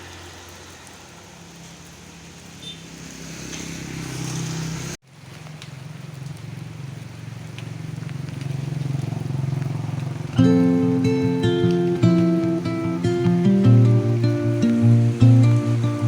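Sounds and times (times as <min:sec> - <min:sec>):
rain falling: 0:00.0 - 0:16.0
faint drip ticks: 0:05.3 - 0:16.0.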